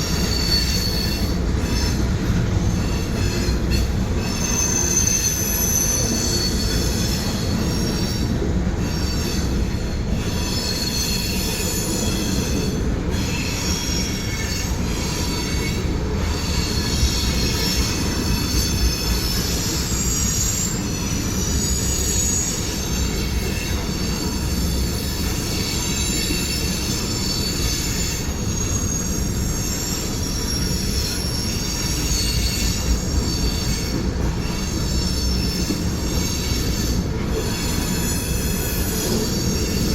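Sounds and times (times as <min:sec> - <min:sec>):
freight train cars rumbling past: 0:00.0 - 0:39.9
train wheel squeals: 0:00.0 - 0:39.9.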